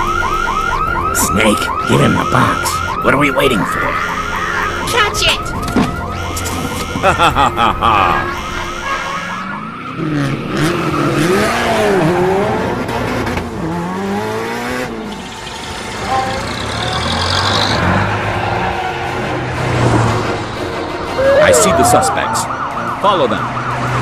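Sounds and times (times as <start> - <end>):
siren warbling: 0.0 - 12.2, 21.0 - 24.0
sports car engine revving: 9.9 - 20.4.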